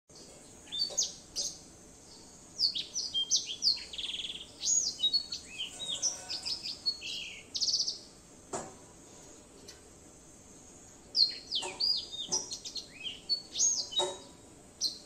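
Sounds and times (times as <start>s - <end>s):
songbird singing: 0.1s - 15.0s
bird fast trills: 3.2s - 7.9s.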